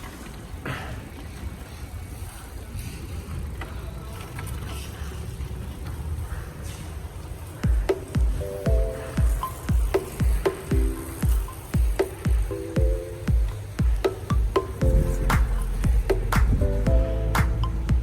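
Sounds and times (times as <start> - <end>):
wind rumbling on microphone: 13.7 - 18.0.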